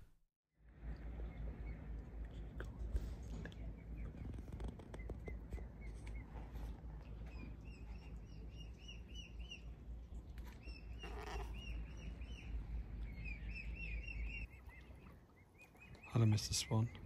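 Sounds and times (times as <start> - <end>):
low steady rumble: 0.6 - 15.8
bird chirping: 7.2 - 17.0.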